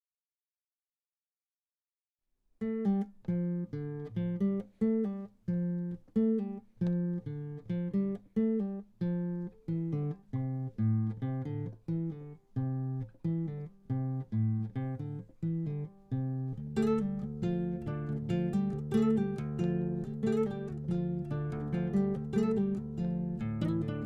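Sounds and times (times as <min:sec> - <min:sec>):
acoustic guitar strumming chords: 0:02.7 - 0:24.0.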